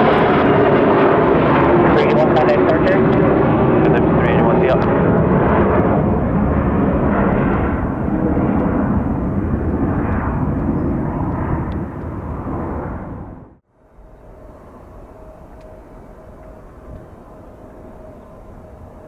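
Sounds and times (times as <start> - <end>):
jet engines at takeoff: 0.0 - 19.0.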